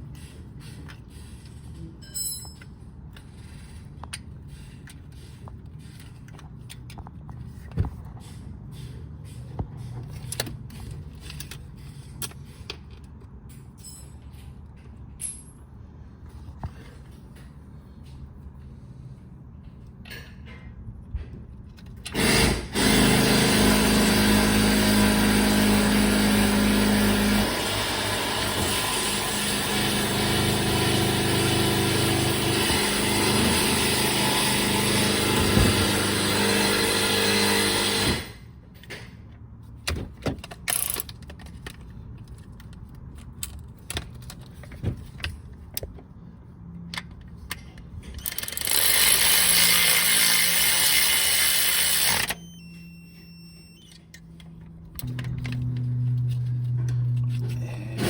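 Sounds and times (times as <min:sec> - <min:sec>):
small power tool motor running: 0:22.2 - 0:38.3, 0:48.3 - 0:52.5.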